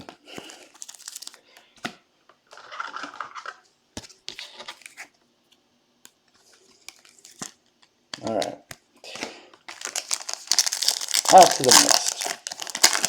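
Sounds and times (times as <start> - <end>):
cards slid into plastic sleeves: 6.1 - 7.9.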